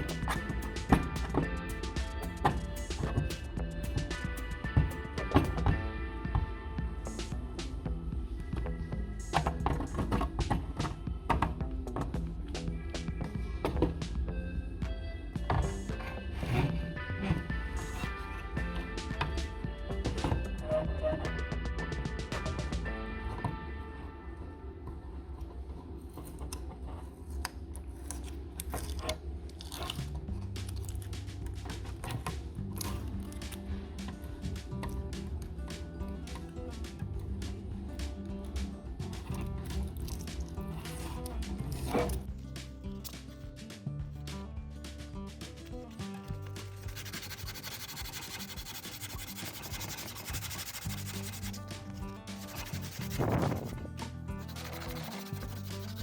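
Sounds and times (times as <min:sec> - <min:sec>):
background music: 0:00.0 - 0:25.6, 0:29.6 - 0:56.0
abrasive sanding scrape: 0:46.6 - 0:56.0.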